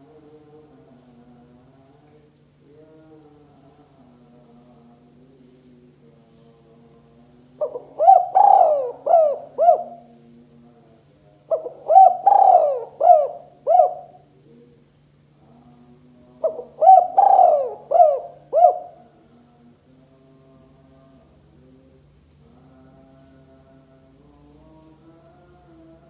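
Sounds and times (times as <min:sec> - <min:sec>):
faint steady hum: 0:00.0 - 0:26.0
dove cooing: 0:07.6 - 0:10.1, 0:11.5 - 0:14.3, 0:16.4 - 0:19.1.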